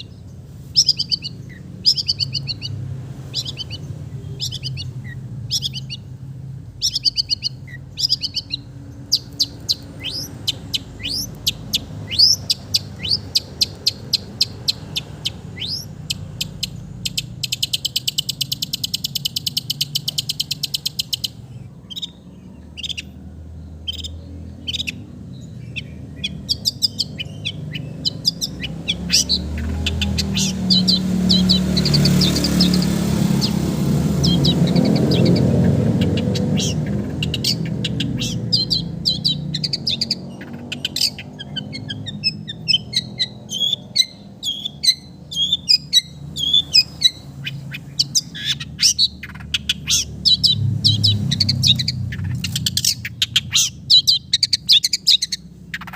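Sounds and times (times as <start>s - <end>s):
bird singing sharp chips: 0.0s - 55.9s
bird dry chatter: 25.7s - 55.9s.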